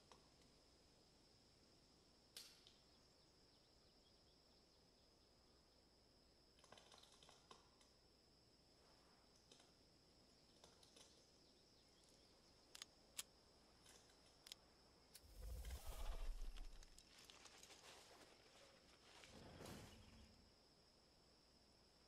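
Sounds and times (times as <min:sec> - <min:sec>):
faint clicks: 0:06.6 - 0:08.0, 0:09.3 - 0:09.8, 0:10.4 - 0:11.3, 0:12.0 - 0:17.6
low rumble: 0:15.3 - 0:17.0.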